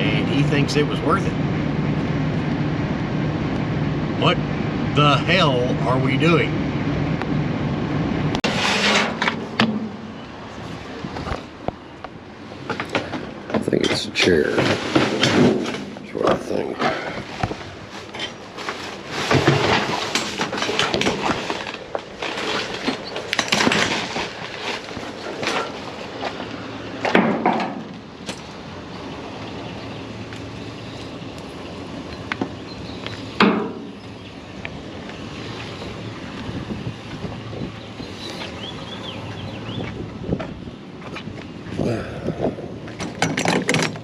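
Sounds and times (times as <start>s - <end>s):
junk clattering and rattling: 8.4s - 10.2s, 12.6s - 28.6s, 33.4s - 34.0s, 42.4s - 44.0s.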